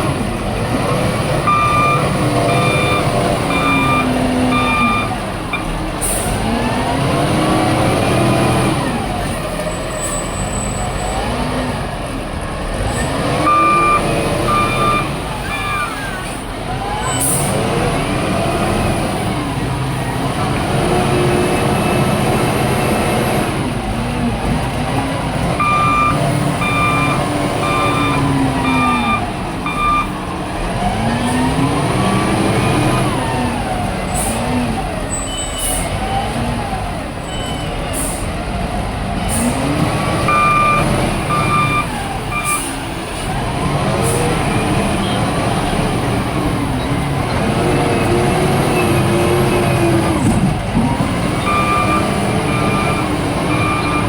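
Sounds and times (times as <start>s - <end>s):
excavator diesel engine: 0.0s - 54.0s
reversing alarm beeping: 1.4s - 5.8s, 13.4s - 16.2s, 25.6s - 30.2s, 40.2s - 42.8s, 51.4s - 54.0s.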